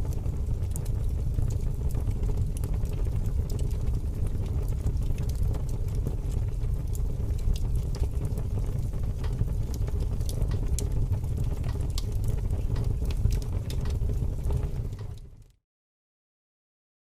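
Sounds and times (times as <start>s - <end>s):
aquarium water and pump rumble: 0.0s - 15.5s.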